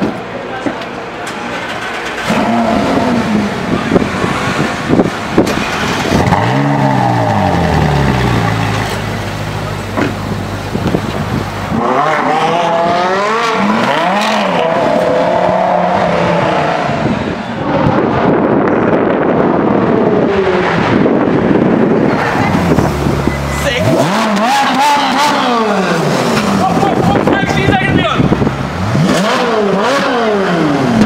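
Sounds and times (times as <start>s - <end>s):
exhaust cracks: 1.3s - 12.6s
sports car engine revving: 2.0s - 31.0s.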